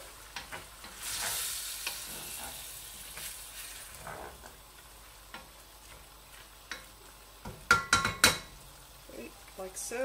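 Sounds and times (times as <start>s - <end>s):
onions and chicken sizzling in oil: 0.0s - 10.0s
wooden spoon knocking on pan: 6.7s - 8.5s.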